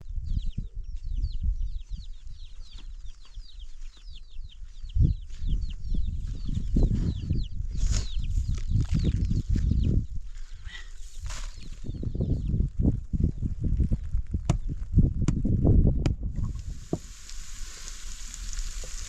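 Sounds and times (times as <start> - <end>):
birds chirping: 0.2 - 12.6
low thumps and knocks: 14.4 - 17.1.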